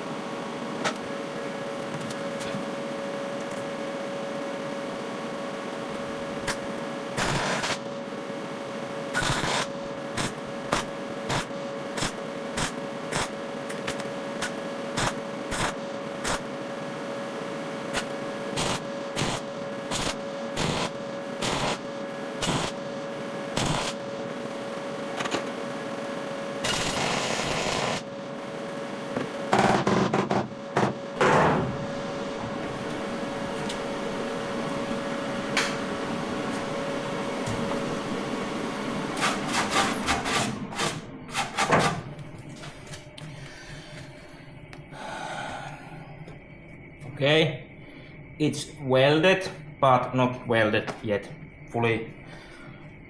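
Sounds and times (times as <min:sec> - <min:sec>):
steady hum: 0:00.0 - 0:53.0
welding arc crackling: 0:06.0 - 0:08.0, 0:09.0 - 0:16.6, 0:17.8 - 0:25.4, 0:26.6 - 0:28.1.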